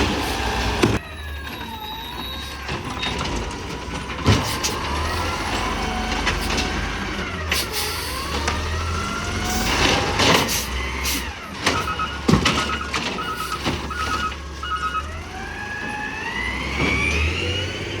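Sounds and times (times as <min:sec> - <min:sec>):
diesel engine revving: 0:00.0 - 0:18.0
warning beeper: 0:11.7 - 0:15.4.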